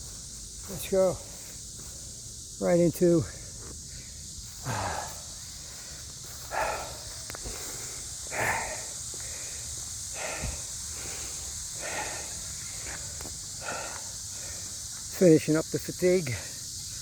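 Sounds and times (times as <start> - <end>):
cicada chorus: 0.0 - 17.0
man exhaling sharply: 4.6 - 5.2.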